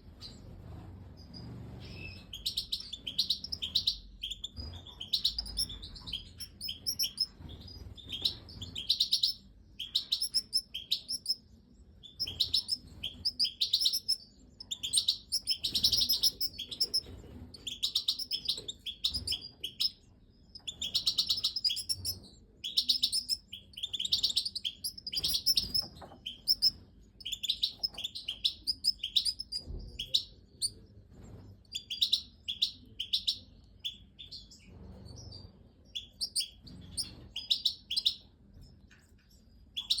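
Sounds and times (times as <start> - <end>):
goldfinches chirping: 1.2 - 30.7, 35.9 - 38.2.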